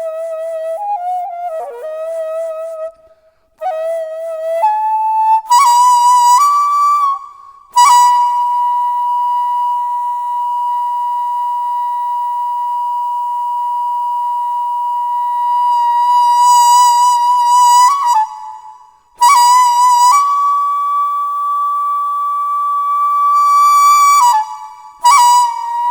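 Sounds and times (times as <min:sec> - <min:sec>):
bamboo flute long note: 0:00.0 - 0:25.9
short breath: 0:03.0 - 0:03.6, 0:07.2 - 0:07.8.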